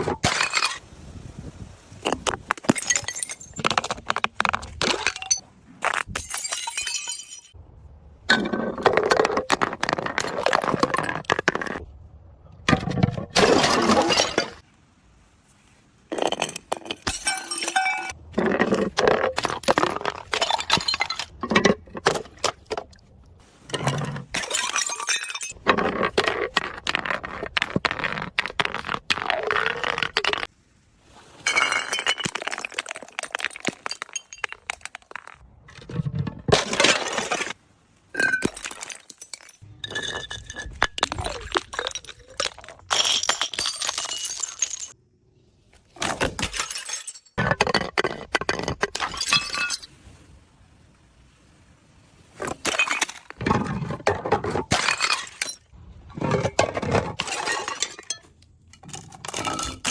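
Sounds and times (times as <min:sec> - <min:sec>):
glass bottles shattering: 0:00.0 - 0:00.8, 0:02.6 - 0:04.0, 0:04.8 - 0:07.6, 0:13.4 - 0:14.6, 0:16.1 - 0:22.6, 0:23.7 - 0:25.7, 0:31.4 - 0:35.4, 0:36.5 - 0:37.6, 0:38.2 - 0:45.0, 0:46.0 - 0:47.9, 0:48.5 - 0:49.9, 0:52.4 - 0:59.9
broken glass clinking and crunching: 0:04.8 - 0:07.6, 0:16.1 - 0:18.2, 0:19.1 - 0:22.2, 0:23.8 - 0:27.0, 0:31.5 - 0:35.4, 0:38.2 - 0:45.0, 0:46.0 - 0:49.9, 0:52.5 - 0:59.9.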